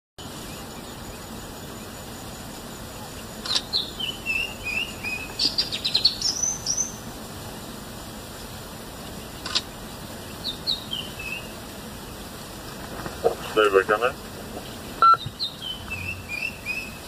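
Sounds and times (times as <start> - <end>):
steady background hiss: 0.2 - 17.0
bird chirping: 2.9 - 7.1, 9.0 - 12.4, 14.6 - 17.0.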